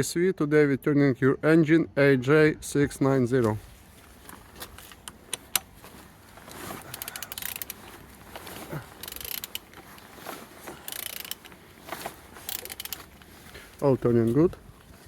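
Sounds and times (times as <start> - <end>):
engine crank turning rush: 6.5 - 13.2
ratchet wrench clicking: 6.9 - 7.8, 9.0 - 9.8, 10.8 - 11.5, 12.4 - 13.1.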